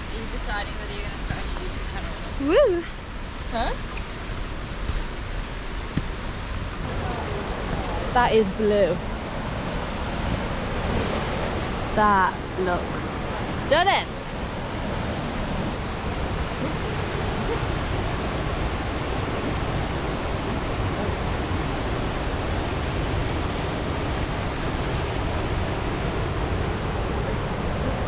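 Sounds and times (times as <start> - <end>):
waterfall rushing: 6.8 - 28.0.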